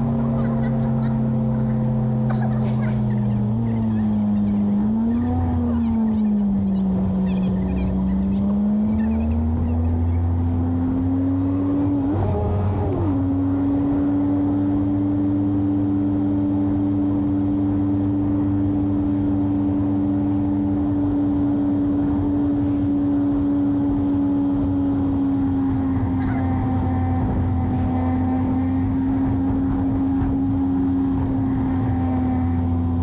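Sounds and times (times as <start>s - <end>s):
pickup engine droning: 0.0s - 33.0s.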